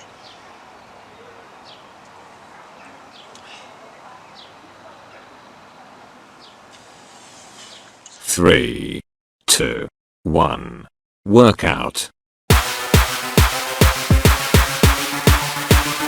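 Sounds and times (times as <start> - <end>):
outdoor background hiss: 0.0 - 8.2
birds chirping: 0.0 - 8.3.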